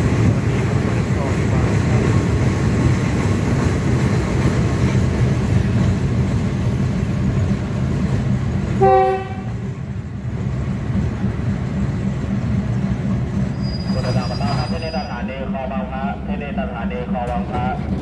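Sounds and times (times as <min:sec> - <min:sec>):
train rumbling: 0:00.0 - 0:18.0
train horn blast: 0:08.8 - 0:09.6.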